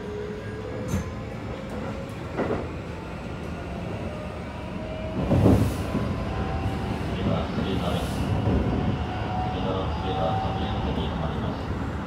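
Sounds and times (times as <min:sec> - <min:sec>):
wheels rumbling on rail: 0:00.5 - 0:12.0.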